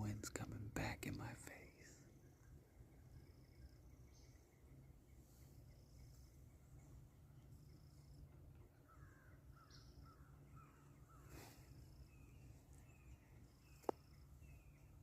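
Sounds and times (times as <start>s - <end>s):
faint bird chirps: 0.0s - 15.0s
distant bird calling: 1.0s - 15.0s.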